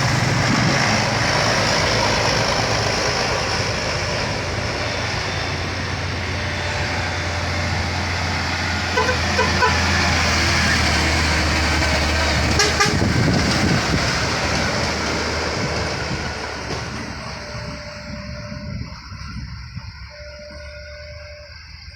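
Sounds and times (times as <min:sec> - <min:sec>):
diesel truck engine labouring: 0:00.0 - 0:21.9
truck horn toots: 0:08.9 - 0:10.2, 0:12.4 - 0:13.4.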